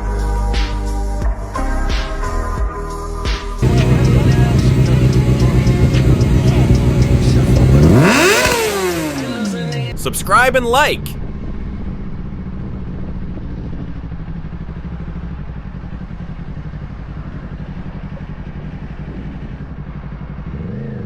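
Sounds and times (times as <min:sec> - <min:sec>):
motorcycle engine idling: 0:03.6 - 0:10.2, 0:11.1 - 0:21.0.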